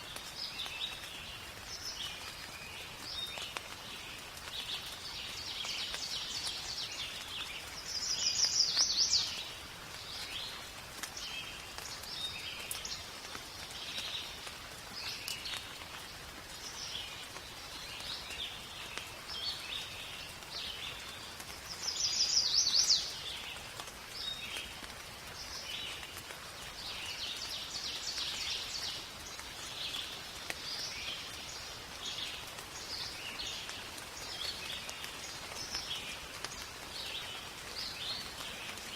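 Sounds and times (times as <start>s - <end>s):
rain hiss: 0.0s - 38.9s
birds chirping and singing: 6.0s - 9.5s, 21.8s - 23.4s.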